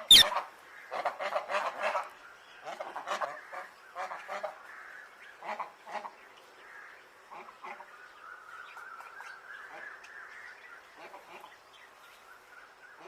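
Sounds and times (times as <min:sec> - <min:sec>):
parrot squawking: 0:00.0 - 0:00.3.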